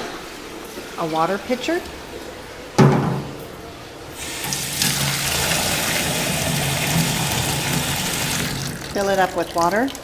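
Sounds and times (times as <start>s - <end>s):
tap water filling a pitcher: 4.2s - 10.0s.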